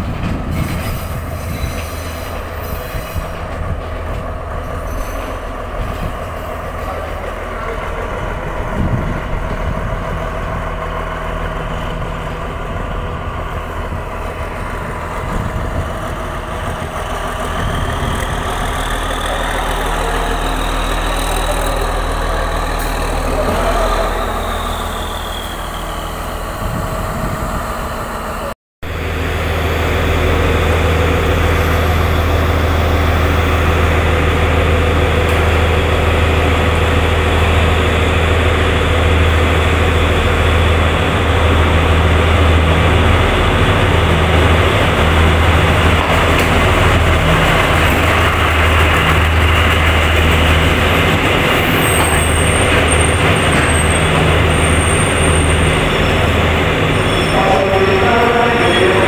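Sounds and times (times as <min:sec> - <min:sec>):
train engine humming: 0:00.0 - 0:59.0
wheel and rail noise: 0:00.0 - 0:59.0
high squeal: 0:04.7 - 0:05.5, 0:18.8 - 0:28.1, 0:50.9 - 0:59.0
diesel engine idling: 0:07.3 - 0:52.4.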